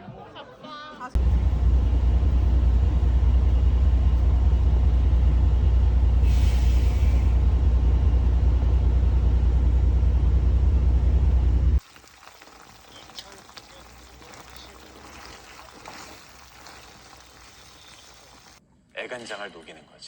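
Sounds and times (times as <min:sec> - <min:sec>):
loud low rumble: 0:01.2 - 0:11.8
brief hiss: 0:06.2 - 0:07.4.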